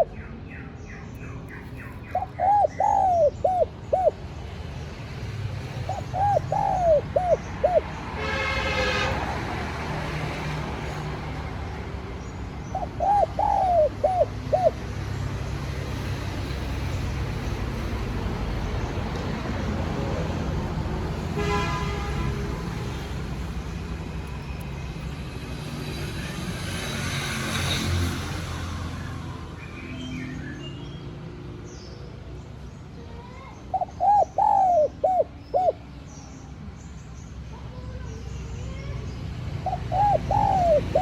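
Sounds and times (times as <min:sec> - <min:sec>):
low rumble of distant traffic: 0:00.0 - 0:41.0
dove cooing: 0:01.7 - 0:04.3, 0:05.8 - 0:08.0, 0:12.6 - 0:15.0, 0:33.7 - 0:35.9, 0:39.6 - 0:41.0.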